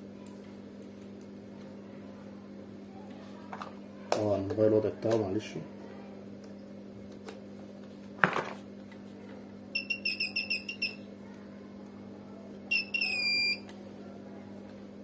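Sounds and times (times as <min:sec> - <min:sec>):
multimeter continuity beeps: 0:09.7 - 0:11.1, 0:12.7 - 0:13.7.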